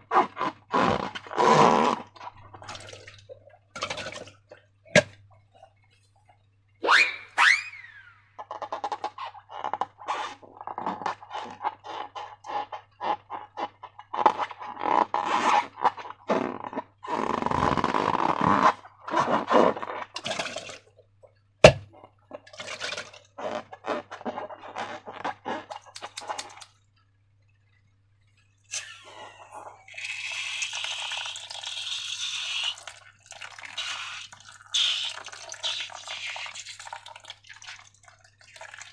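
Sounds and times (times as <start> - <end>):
slime squelching by hand: 21.6 - 26.7.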